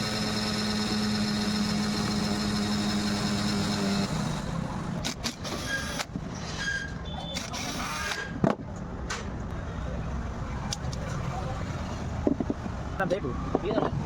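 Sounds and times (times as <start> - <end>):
mixer grinder motor whine: 0.0 - 4.9.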